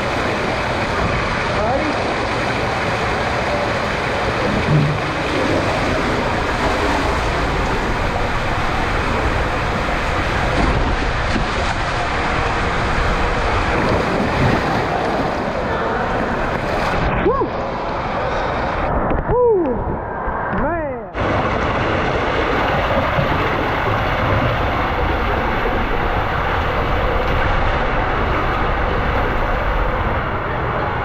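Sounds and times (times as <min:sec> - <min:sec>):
bumps in waterslide: 0:00.0 - 0:17.6, 0:21.2 - 0:31.0
water rushing through tube: 0:00.0 - 0:18.9, 0:21.2 - 0:31.0
wind on microphone: 0:03.5 - 0:20.6.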